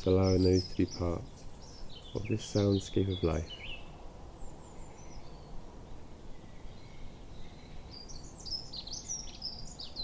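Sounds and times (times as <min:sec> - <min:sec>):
songbird warbling: 0:00.0 - 0:05.6.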